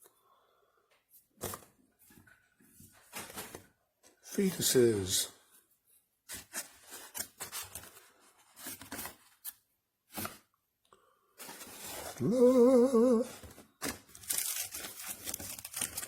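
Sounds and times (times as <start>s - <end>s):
rustling and tearing handling noises: 6.3s - 10.4s, 13.2s - 16.0s.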